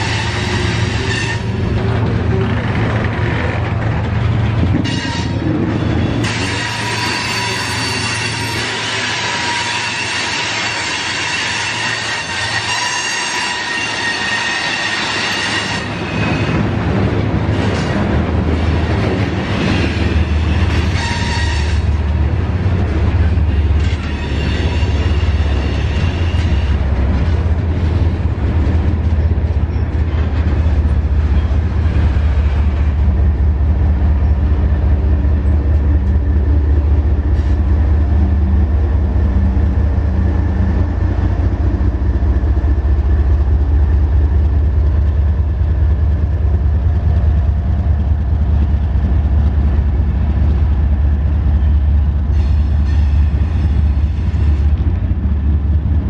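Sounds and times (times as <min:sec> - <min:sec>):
wheels squealing on rails: 0:00.0 - 0:55.6
freight train cars rumbling: 0:00.0 - 0:56.0.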